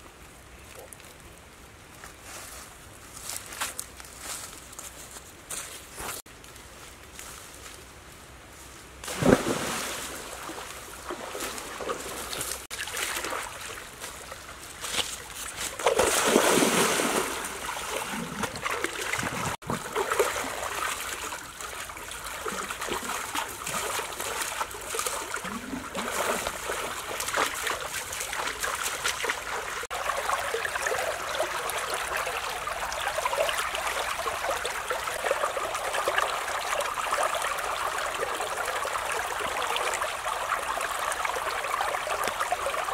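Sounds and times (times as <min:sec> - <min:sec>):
stream water splashing: 0:09.0 - 0:42.9.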